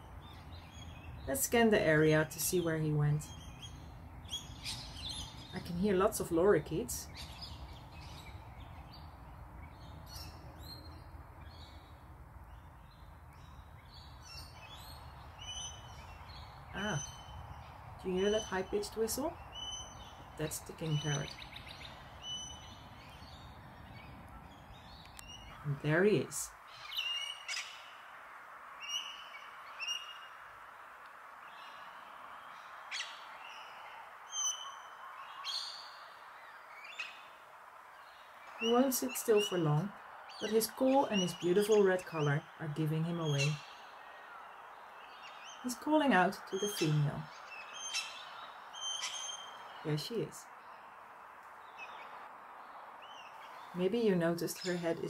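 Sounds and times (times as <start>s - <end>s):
lorikeets screeching: 0.0s - 9.0s, 13.9s - 28.0s, 38.1s - 52.2s
faint steady hiss: 0.0s - 55.0s
low steady background noise: 0.0s - 55.0s.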